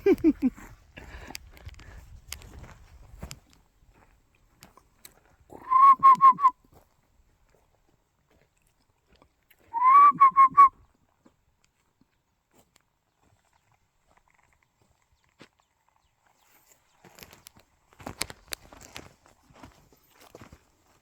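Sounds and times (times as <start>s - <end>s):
whistled dove-like calls: 5.6s - 6.6s, 9.7s - 10.8s.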